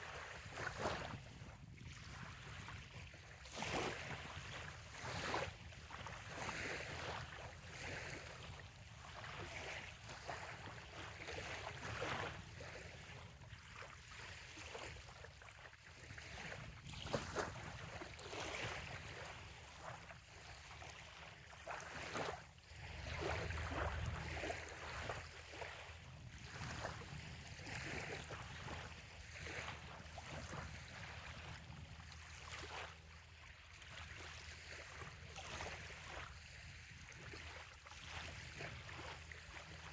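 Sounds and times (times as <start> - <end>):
waves lapping on sandy shore: 0.0 - 39.9.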